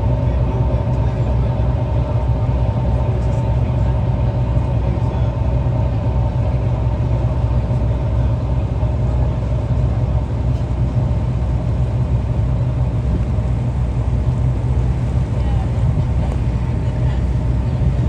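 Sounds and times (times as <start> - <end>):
boat engine rumbling: 0.0 - 18.0.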